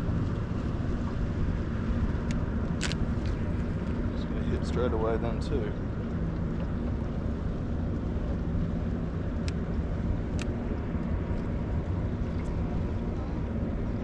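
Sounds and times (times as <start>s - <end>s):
boat engine humming: 0.0s - 14.0s.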